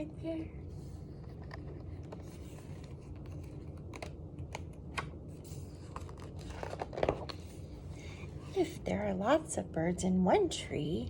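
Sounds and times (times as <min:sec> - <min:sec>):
steady low hum: 0:00.0 - 0:11.0
book page turning: 0:01.0 - 0:07.8.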